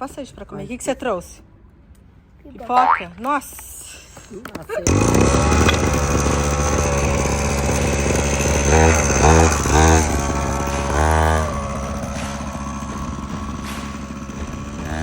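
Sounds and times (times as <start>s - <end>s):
motocross bike engine revving: 4.8s - 15.0s.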